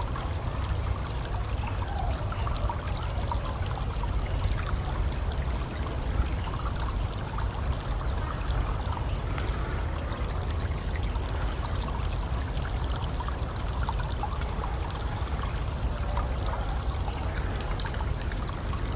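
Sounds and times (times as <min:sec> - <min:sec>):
running water: 0:00.0 - 0:18.9.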